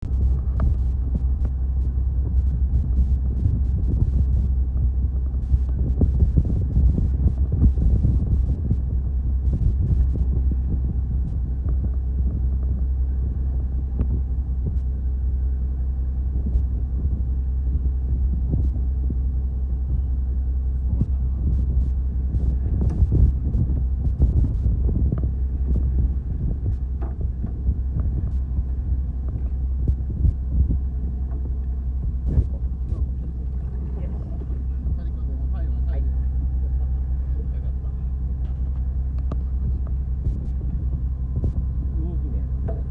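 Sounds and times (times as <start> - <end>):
boat engine rumbling: 0.0 - 42.9
wind noise on microphone: 0.0 - 42.9.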